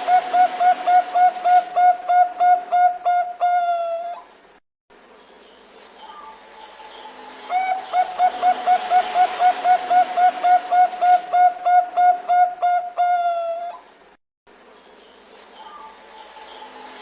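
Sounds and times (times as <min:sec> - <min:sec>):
dove cooing: 0:00.0 - 0:04.3, 0:07.5 - 0:13.9
steady hiss: 0:04.2 - 0:12.9.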